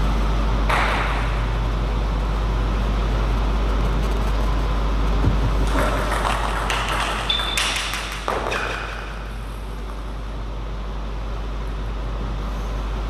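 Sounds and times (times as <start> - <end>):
background hum: 0.0 - 13.0
table tennis ball clicking: 5.4 - 9.2.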